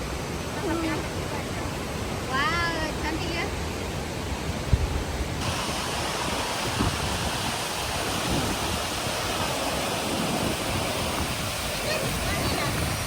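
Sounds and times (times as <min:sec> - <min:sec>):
waterfall roaring: 0:00.0 - 0:13.0
wind buffeting microphone: 0:04.1 - 0:13.0.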